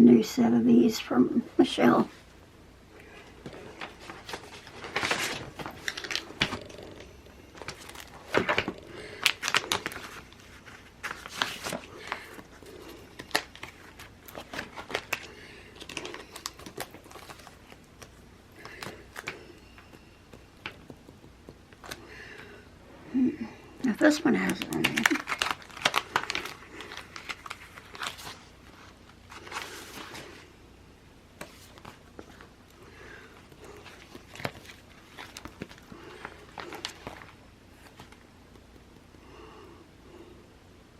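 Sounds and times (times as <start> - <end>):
paper stickers rustling: 3.4 - 22.0, 24.0 - 30.4, 31.4 - 38.2.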